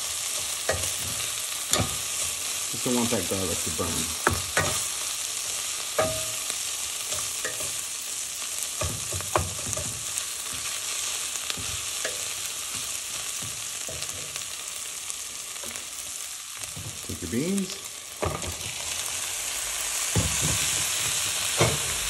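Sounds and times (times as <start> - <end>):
food sizzling in a pot: 0.0 - 22.0.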